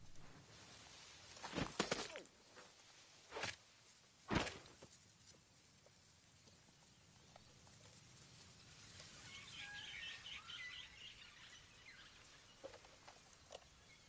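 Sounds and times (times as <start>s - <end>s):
birds chirping: 8.6s - 14.0s.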